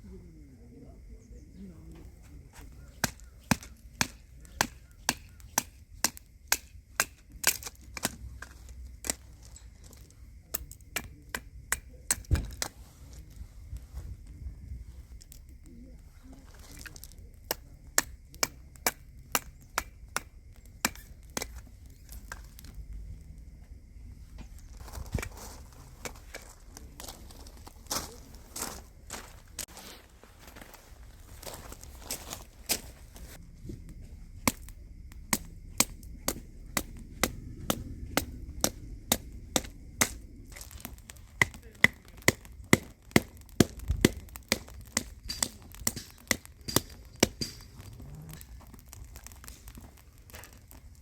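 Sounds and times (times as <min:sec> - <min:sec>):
sharp chopping strikes: 0:03.0 - 0:08.2.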